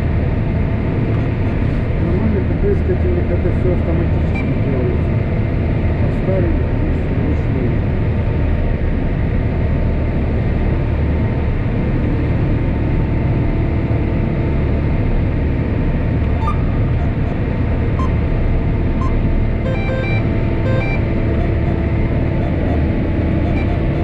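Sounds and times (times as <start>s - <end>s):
engine running: 0.0s - 24.0s
faint short beeps: 16.4s - 17.4s, 18.0s - 18.2s, 19.0s - 24.0s.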